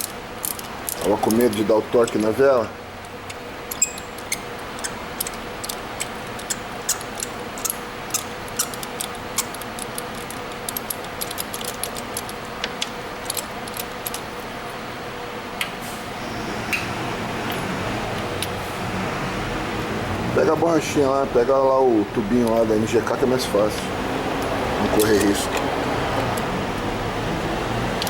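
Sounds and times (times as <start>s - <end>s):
hand tools clicking on metal: 0.0s - 14.2s, 23.8s - 26.5s
faint steady hum: 0.0s - 28.0s.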